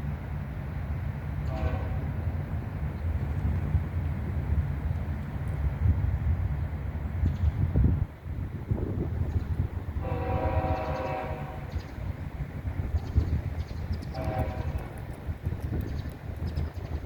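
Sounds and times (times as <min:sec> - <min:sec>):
train low rumble: 0:00.0 - 0:17.0
locomotive horn blasts: 0:01.4 - 0:02.2, 0:10.0 - 0:11.8, 0:14.1 - 0:15.0.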